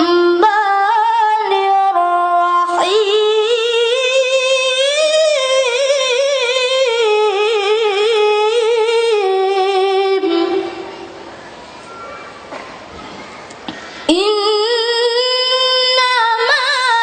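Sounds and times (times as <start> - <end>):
child chanting unaccompanied: 0.0 - 11.2.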